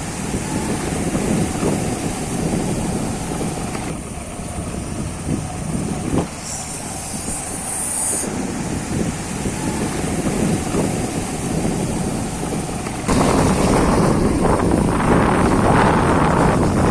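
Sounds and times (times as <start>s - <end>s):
motorbike riding: 0.0s - 16.9s
wind buffeting microphone: 0.0s - 16.9s
thin high hiss: 6.1s - 13.1s.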